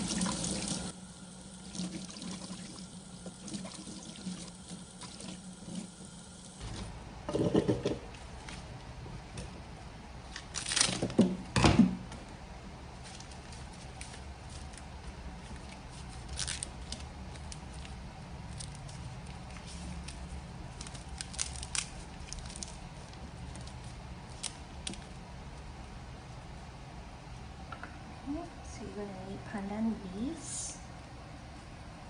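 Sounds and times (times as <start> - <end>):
kitchen items knocking and clattering: 7.3 - 8.1.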